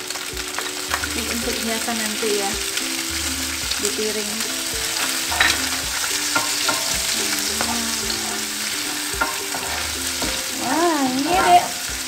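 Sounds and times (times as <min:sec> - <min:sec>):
food sizzling in hot oil: 0:00.0 - 0:12.0
utensil clicking against pan: 0:04.9 - 0:12.0.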